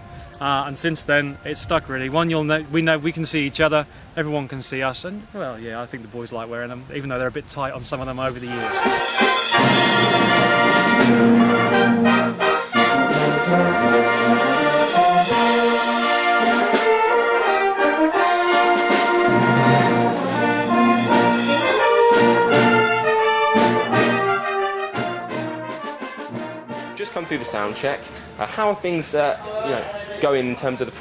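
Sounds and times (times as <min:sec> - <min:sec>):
brass band playing chords: 0:07.5 - 0:30.9.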